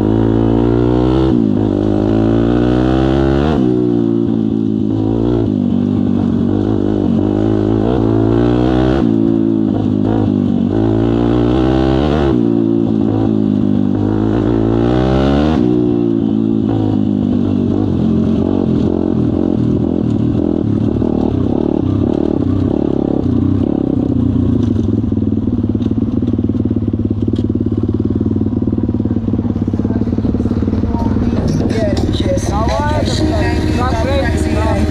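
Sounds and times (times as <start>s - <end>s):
pit bike engine revving: 0.0s - 34.9s.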